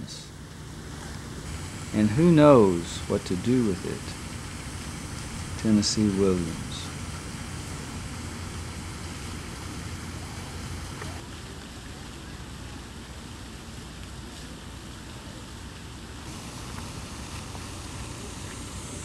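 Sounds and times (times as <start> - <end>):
moving train rumbling: 0.0 - 11.2.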